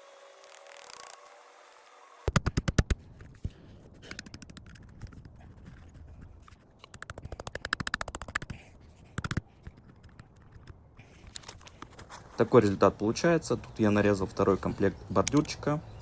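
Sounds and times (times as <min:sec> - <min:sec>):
hammer striking plastic stakes: 0:02.3 - 0:03.0, 0:06.8 - 0:09.4.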